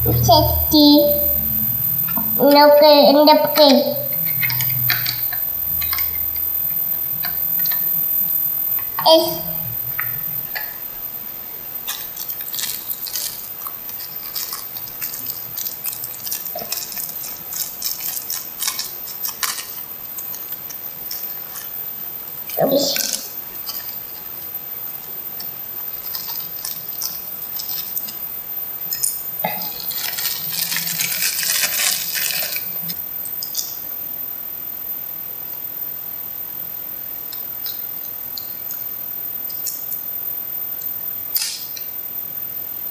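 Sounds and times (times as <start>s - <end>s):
plastic parts rattling: 11.9s - 20.4s, 29.8s - 32.6s.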